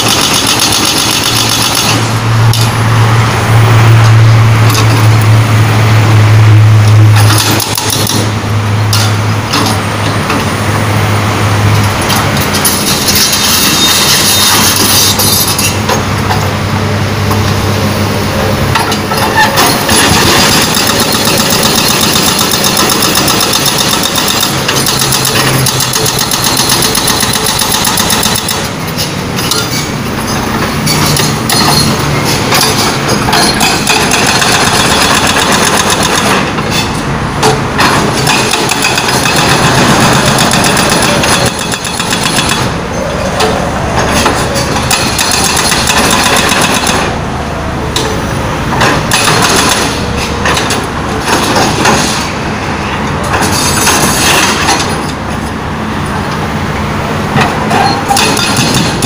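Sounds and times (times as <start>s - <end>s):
hydraulic breaker hammering asphalt: 0.0s - 2.7s, 7.2s - 10.5s, 18.7s - 29.7s, 30.6s - 42.8s, 44.0s - 47.2s, 47.9s - 52.3s, 57.3s - 59.0s
diesel engine running: 0.0s - 59.0s.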